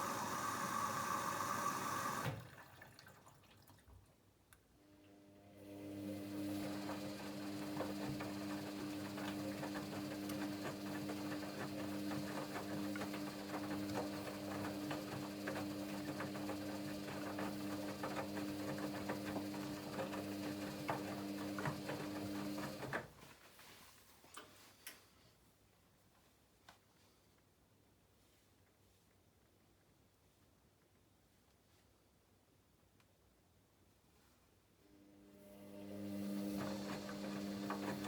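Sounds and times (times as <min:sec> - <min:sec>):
washing machine motor hum: 0:00.0 - 0:03.0, 0:05.1 - 0:23.2, 0:34.9 - 0:38.0.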